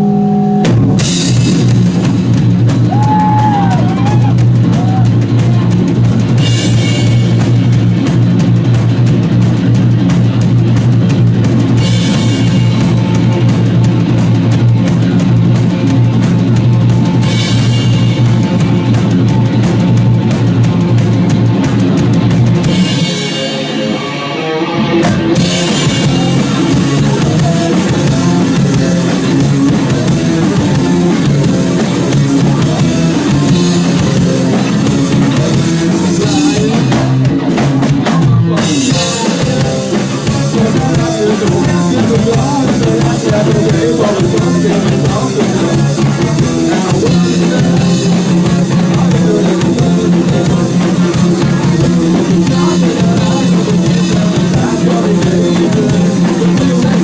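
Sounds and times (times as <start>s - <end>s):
instrumental rock band: 0.0s - 57.0s.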